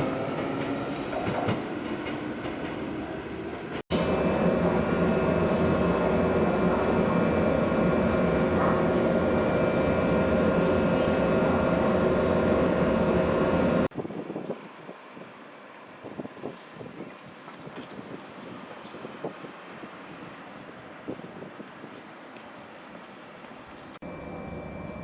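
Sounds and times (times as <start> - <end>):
machine hum: 3.9 - 13.9, 24.0 - 25.0.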